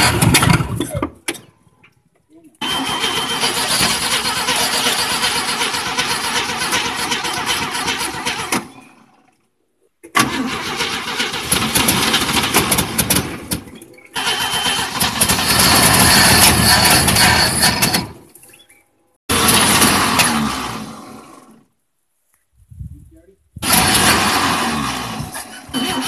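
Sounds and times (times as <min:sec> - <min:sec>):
truck engine running rough: 0:00.0 - 0:01.1, 0:02.6 - 0:09.2, 0:10.2 - 0:18.2, 0:19.3 - 0:21.6, 0:23.6 - 0:26.0.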